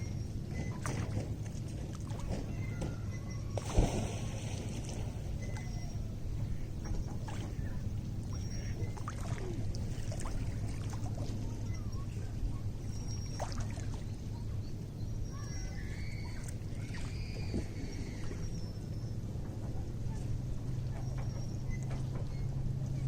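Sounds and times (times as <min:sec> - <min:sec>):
lake water lapping at shore: 0:00.5 - 0:02.8, 0:03.5 - 0:11.7, 0:12.8 - 0:14.3, 0:16.1 - 0:18.8.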